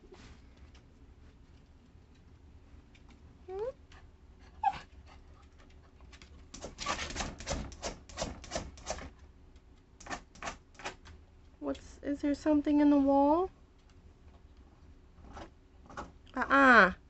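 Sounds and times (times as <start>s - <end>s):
dog whimpering: 4.5s - 4.9s.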